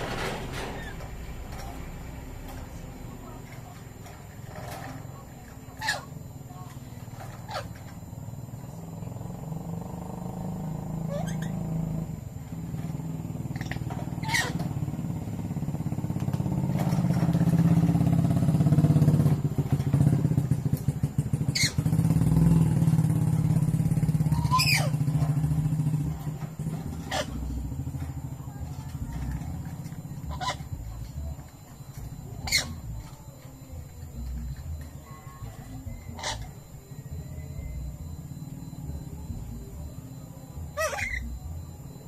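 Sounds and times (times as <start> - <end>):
motorcycle engine running: 0.0 - 42.0
parrot sharp calls: 11.0 - 12.0, 13.5 - 14.7, 24.3 - 25.2, 26.6 - 27.6, 29.7 - 30.7, 32.4 - 32.8, 36.0 - 36.6, 40.8 - 41.3.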